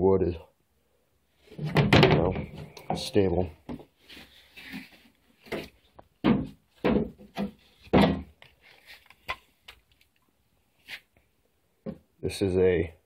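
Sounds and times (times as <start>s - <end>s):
wooden clacks and knocks: 1.6s - 2.8s, 5.4s - 8.5s.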